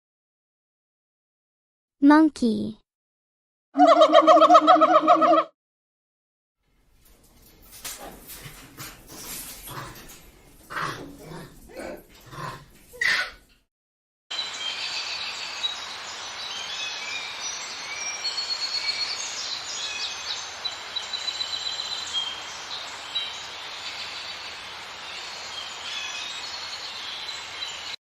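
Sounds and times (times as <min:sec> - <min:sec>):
steady hiss: 0:14.6 - 0:28.0.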